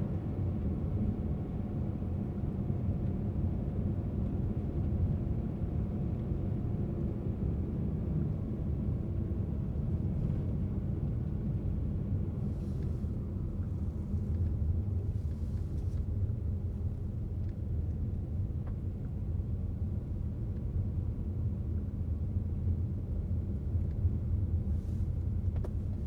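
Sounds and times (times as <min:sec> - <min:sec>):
car engine and tyre rumble: 0:00.2 - 0:26.0.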